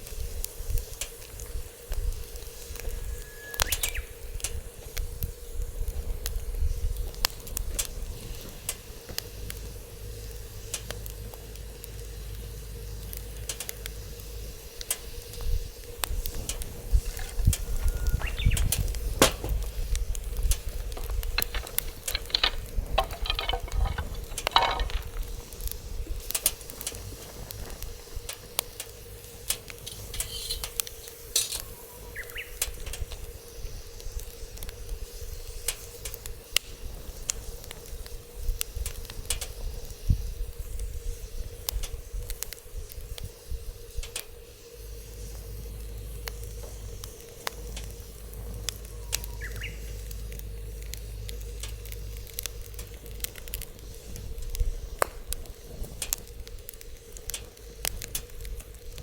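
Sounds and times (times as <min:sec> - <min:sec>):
fire hissing: 0:00.0 - 0:59.0
wood fire crackling: 0:00.0 - 0:59.0
wind on microphone: 0:15.5 - 0:26.3.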